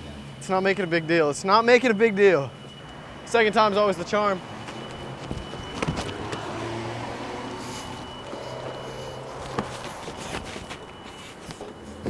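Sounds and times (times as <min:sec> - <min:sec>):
vehicle engine running: 0:02.6 - 0:12.0.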